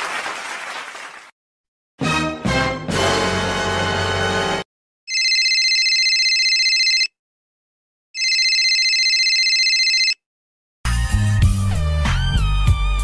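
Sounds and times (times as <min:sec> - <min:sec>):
telephone ringing: 0:05.1 - 0:07.2, 0:08.2 - 0:10.2.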